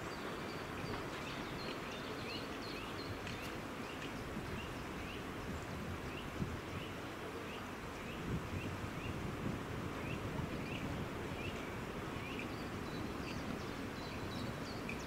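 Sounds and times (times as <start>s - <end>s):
steady background noise: 0.0s - 15.0s
small bird chirping: 10.1s - 15.0s.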